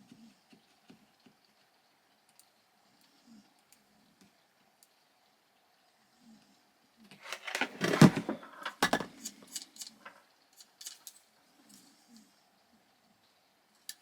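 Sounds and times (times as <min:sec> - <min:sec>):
small plastic clicks and knocks: 0:07.2 - 0:11.2.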